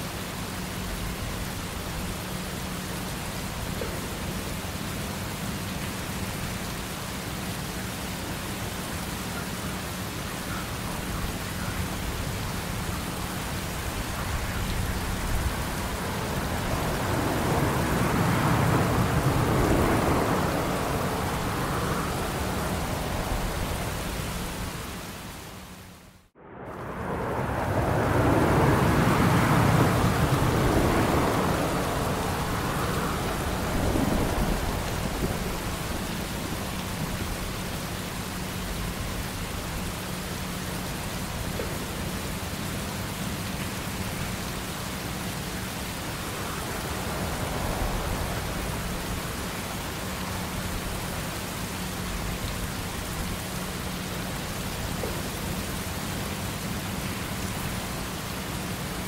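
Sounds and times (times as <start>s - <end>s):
jet airliner engines: 0.0s - 25.5s, 26.4s - 59.0s.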